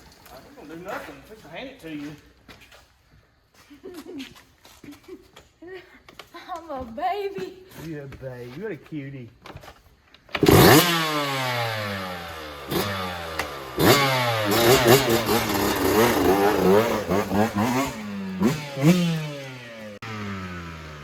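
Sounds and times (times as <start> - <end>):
dirt bike engine revving: 10.4 - 21.0.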